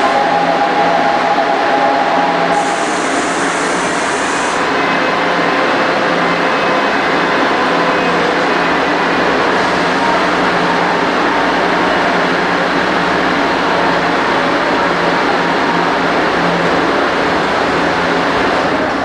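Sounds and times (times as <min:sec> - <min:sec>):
high hiss: 0:00.0 - 0:04.7
train rumble: 0:00.0 - 0:19.0.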